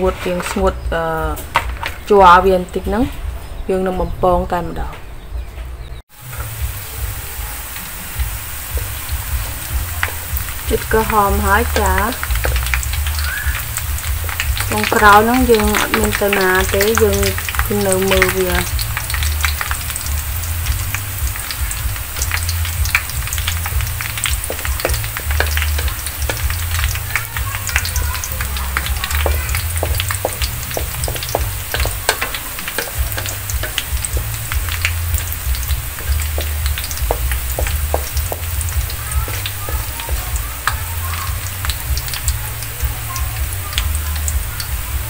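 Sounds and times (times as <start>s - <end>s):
wooden spatula scraping wok: 0.0s - 2.1s, 23.6s - 40.8s
shallots sizzling in hot oil: 0.0s - 3.1s, 6.1s - 45.0s.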